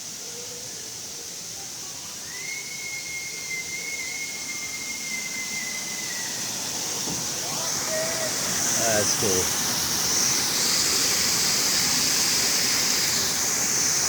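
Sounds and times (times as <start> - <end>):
continuous hiss: 0.0 - 14.0
high-pitched whistle: 2.2 - 6.5.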